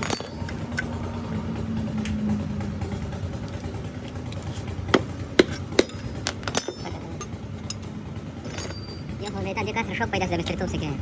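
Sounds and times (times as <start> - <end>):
sharp metallic knocks and clinks: 0.0 - 0.9, 5.4 - 9.5.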